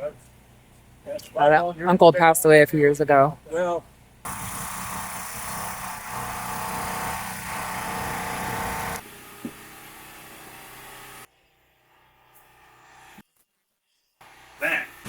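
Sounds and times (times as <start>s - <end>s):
small engine running: 4.3s - 11.3s.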